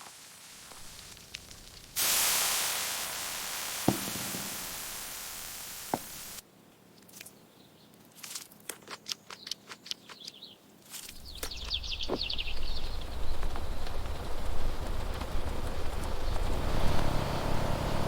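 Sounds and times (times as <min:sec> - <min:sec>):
static hiss: 0:00.0 - 0:06.4.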